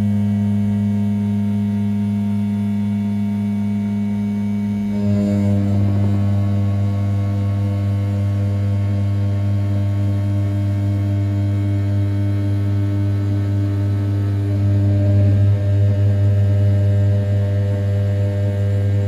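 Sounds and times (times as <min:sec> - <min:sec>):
milling machine spindle humming: 0:03.8 - 0:19.0.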